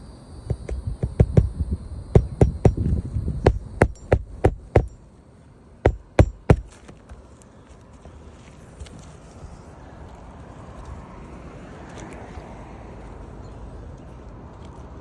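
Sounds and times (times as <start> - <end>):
hammer striking roofing nails: 0.5 - 5.0, 5.8 - 6.8.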